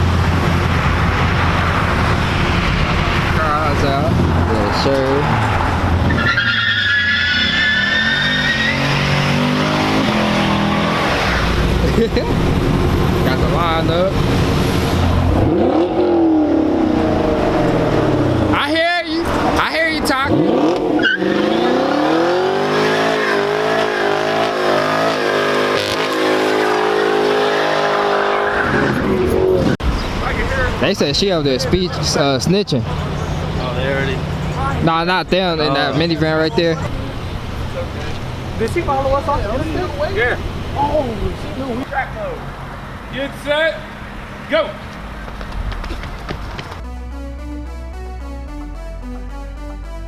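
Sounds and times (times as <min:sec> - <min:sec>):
car engine accelerating hard: 0:00.0 - 0:46.8
car tyres squealing: 0:00.0 - 0:46.8
tyre squeal: 0:04.9 - 0:11.5, 0:20.9 - 0:21.5.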